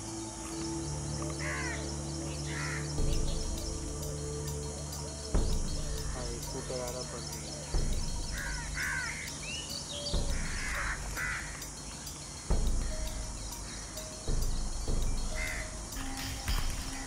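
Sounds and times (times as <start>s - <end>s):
steady low rumble: 0.8s - 17.0s
crow-like caws: 1.4s - 1.8s, 2.4s - 2.8s, 7.8s - 9.4s, 10.2s - 11.7s, 15.3s - 15.8s
dull low thumps: 2.9s - 4.5s, 5.2s - 7.0s, 7.6s - 9.1s, 10.1s - 11.5s, 12.4s - 17.0s.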